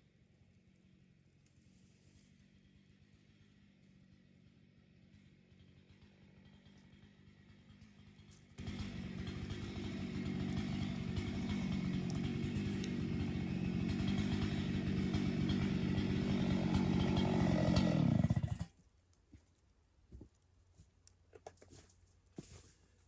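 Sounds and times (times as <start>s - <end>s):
chainsaw running at high throttle: 2.2s - 18.8s.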